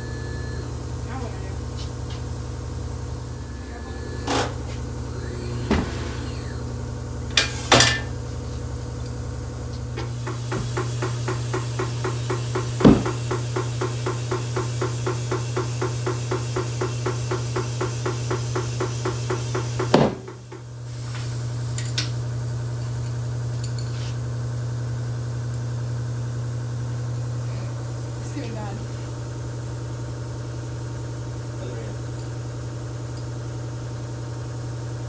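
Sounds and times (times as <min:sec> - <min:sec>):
steady machine hum: 0:00.0 - 0:23.4.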